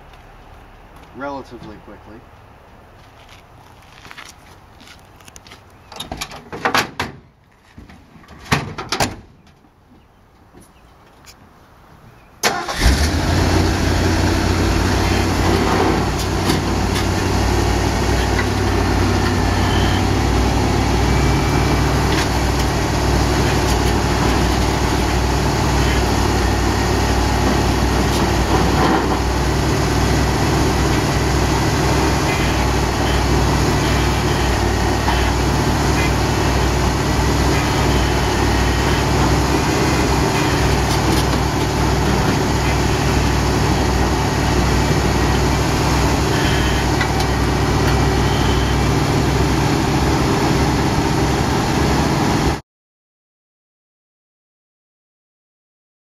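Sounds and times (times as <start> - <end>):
truck engine idling: 12.5 - 52.2.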